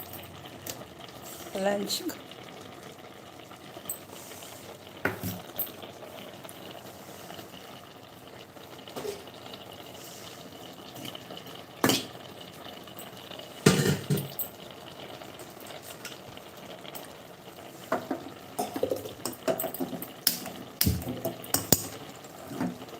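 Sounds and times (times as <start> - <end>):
metal pots and utensils clanking: 11.8 - 12.2, 13.6 - 14.5, 17.9 - 22.8.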